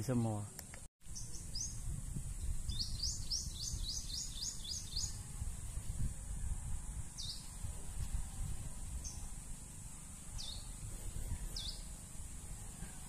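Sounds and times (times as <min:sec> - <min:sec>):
songbird chirping: 0:02.4 - 0:05.2, 0:07.2 - 0:07.6, 0:10.3 - 0:11.9.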